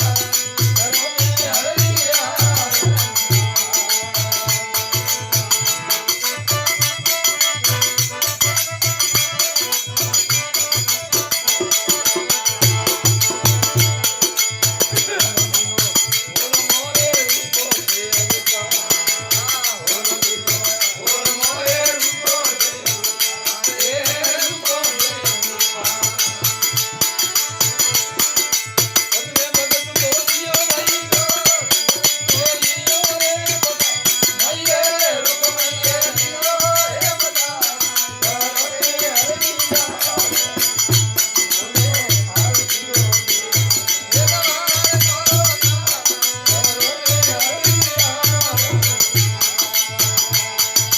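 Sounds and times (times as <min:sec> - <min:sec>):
drum beats: 0:00.0 - 0:22.0
jingling tambourine percussion: 0:00.0 - 0:50.9.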